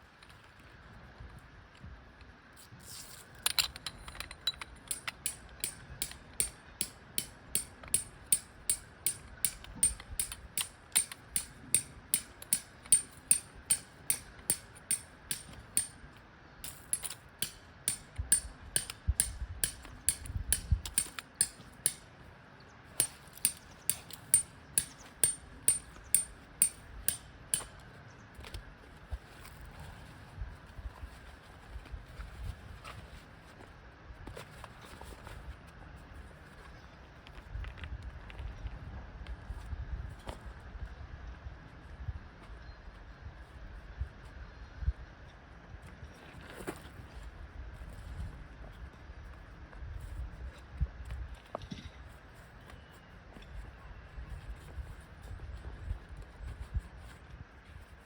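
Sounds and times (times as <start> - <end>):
hammer striking metal: 4.9 - 16.0, 16.6 - 22.0, 23.0 - 27.7.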